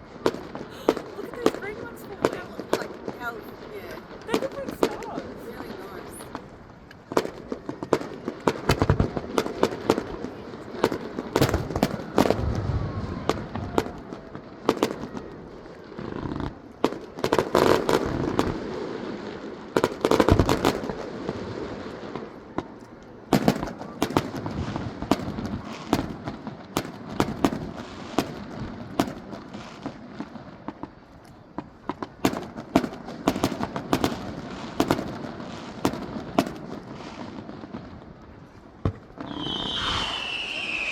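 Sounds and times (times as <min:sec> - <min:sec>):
fireworks bangs and crackles: 0:00.0 - 0:40.9.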